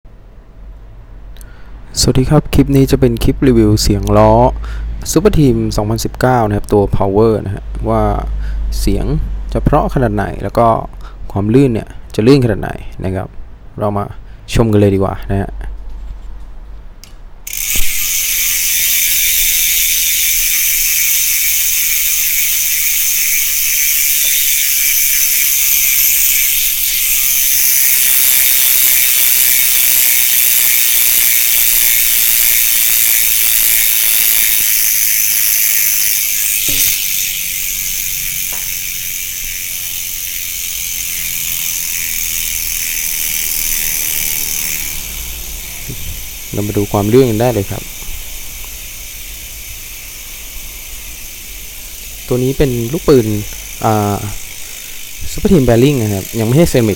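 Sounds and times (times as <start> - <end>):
bicycle freehub ratcheting buzz: 17.4 - 56.9.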